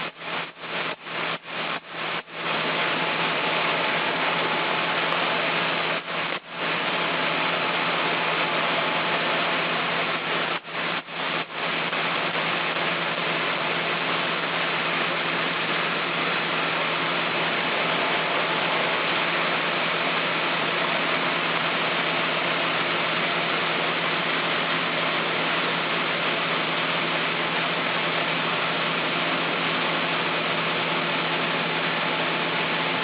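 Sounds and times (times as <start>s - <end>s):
sawmill machinery running: 0.0s - 33.0s.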